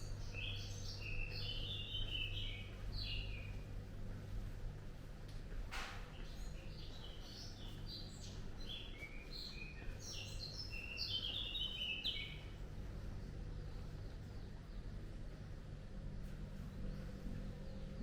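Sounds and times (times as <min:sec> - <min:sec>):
songbird chirping: 0:00.0 - 0:03.7, 0:06.2 - 0:15.4
low background hum: 0:00.0 - 0:18.0.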